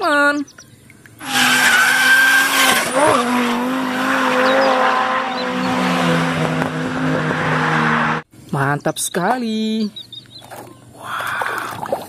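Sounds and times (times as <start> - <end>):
tyres squealing: 1.2 - 6.0
race car engine revving: 1.2 - 8.3.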